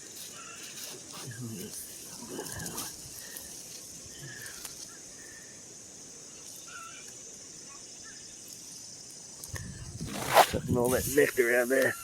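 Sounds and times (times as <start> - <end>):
higher insect chirps: 0.0 - 12.0
insects chirring: 0.0 - 12.0
wind rumble on microphone: 9.5 - 11.2.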